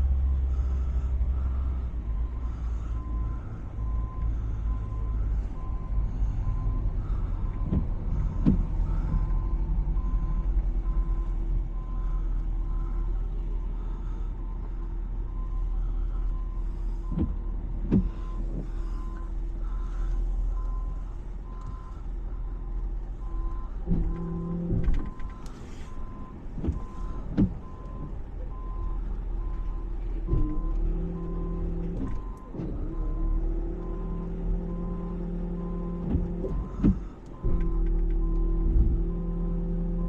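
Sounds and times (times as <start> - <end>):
diesel engine running: 0.0 - 40.0
backup alarm beeping: 18.0 - 33.1.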